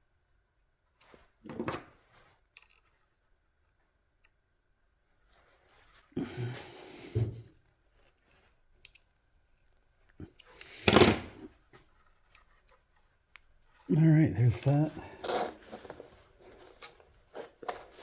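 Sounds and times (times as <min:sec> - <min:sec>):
rustling scrape of handling: 0:14.6 - 0:18.0.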